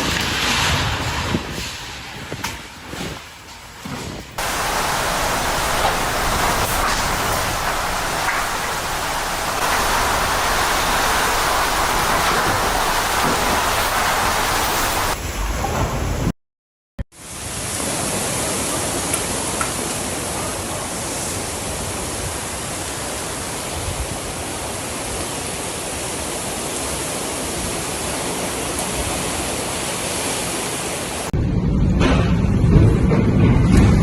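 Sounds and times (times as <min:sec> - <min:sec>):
rushing rain and wind: 0:00.0 - 0:16.3, 0:17.1 - 0:34.0
deep rumbling: 0:31.4 - 0:34.0.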